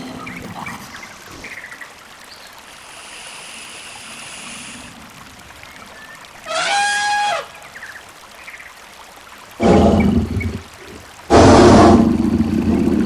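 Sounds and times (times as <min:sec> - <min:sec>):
animal call: 0:06.4 - 0:07.5.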